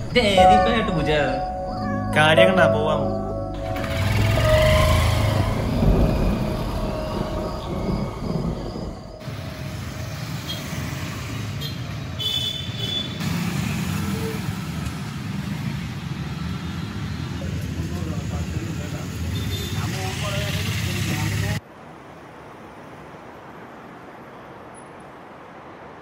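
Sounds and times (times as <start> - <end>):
street traffic noise: 0.0 - 26.0
motorcycle engine running: 3.6 - 7.0.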